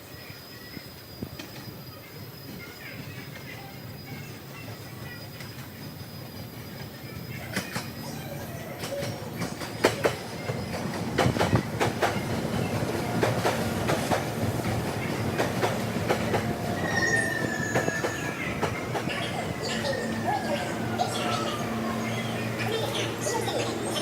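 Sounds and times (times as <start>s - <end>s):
train rumble: 0.0s - 24.0s
train wheels clicking on rail joints: 2.5s - 24.0s
high wheel squeal: 14.6s - 24.0s.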